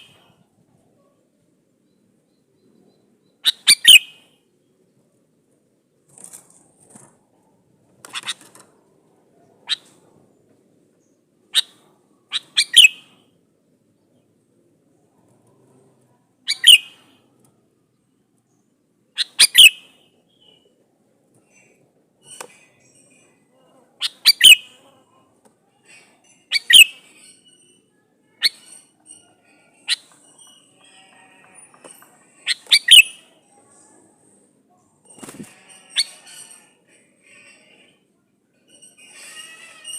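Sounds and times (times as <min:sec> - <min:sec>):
faint bird twittering: 0:01.8 - 0:04.4, 0:16.4 - 0:17.1, 0:25.9 - 0:31.1, 0:32.4 - 0:34.4
bird calling sharp notes: 0:03.4 - 0:04.2, 0:16.5 - 0:17.0, 0:32.5 - 0:33.2.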